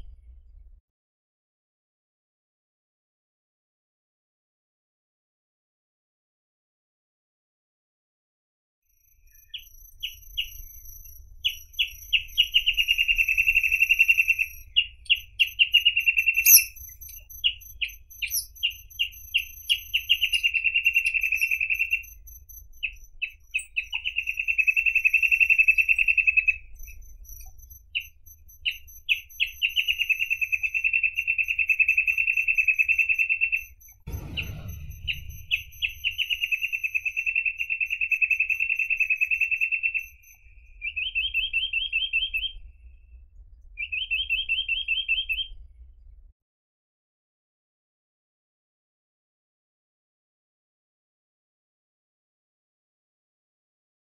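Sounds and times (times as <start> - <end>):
bird singing trills: 9.2 - 42.7, 43.8 - 45.6
low bump: 34.1 - 36.9.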